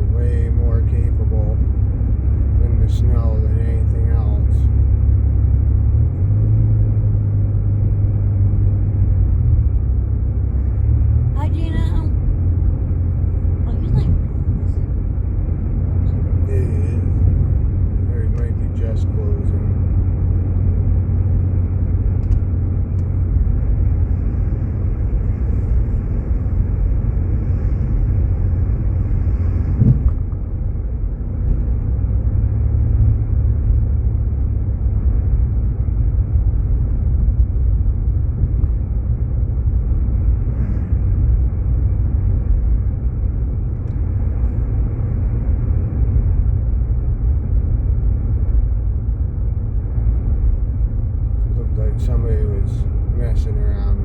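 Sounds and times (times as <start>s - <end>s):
road and engine noise in car: 0.0s - 54.0s
brief thump: 29.8s - 30.2s.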